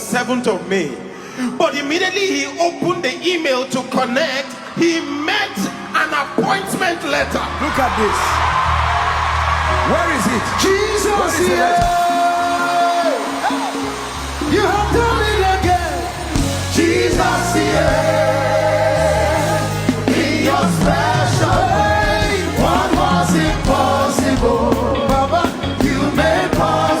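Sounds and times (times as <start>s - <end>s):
choir singing gospel music: 4.0s - 27.0s
steady bass line: 13.4s - 27.0s.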